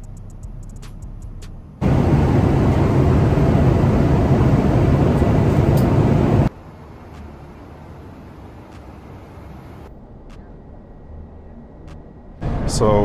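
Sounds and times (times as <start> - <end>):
airplane cabin roar in flight: 1.8 - 10.4
quiet steady hum: 1.8 - 12.4.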